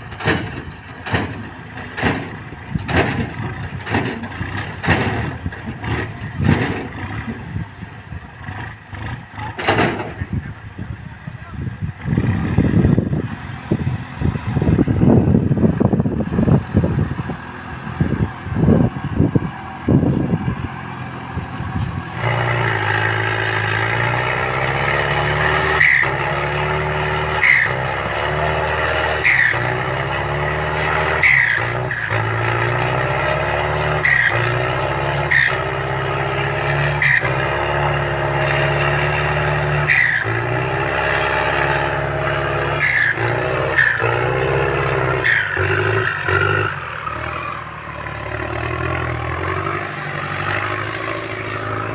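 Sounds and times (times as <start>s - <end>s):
irregular thumps and rumbles: 0.0s - 7.6s
tractor engine running: 0.0s - 51.9s.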